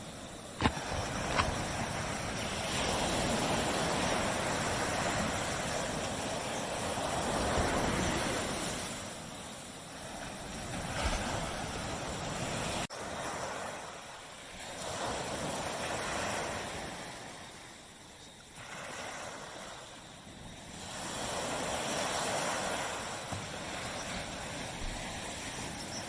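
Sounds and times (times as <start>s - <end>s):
surf washing onto beach: 0.0s - 17.7s, 18.4s - 26.0s.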